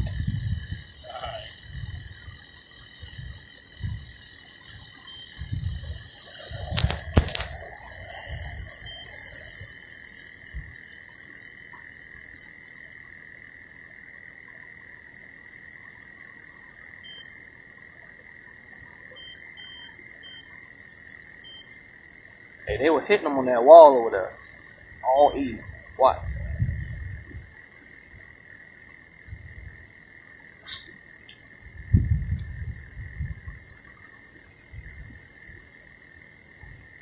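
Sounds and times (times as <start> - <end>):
frogs and insects chorus: 0.0 - 37.0.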